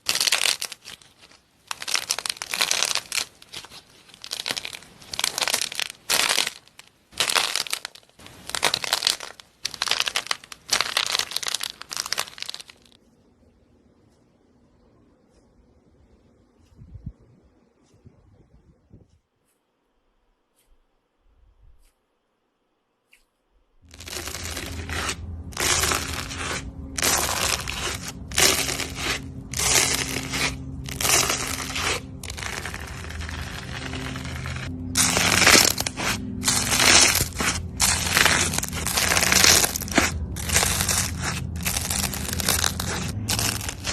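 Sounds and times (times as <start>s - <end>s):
slime crackling and popping: 0.0s - 13.0s, 23.9s - 43.9s.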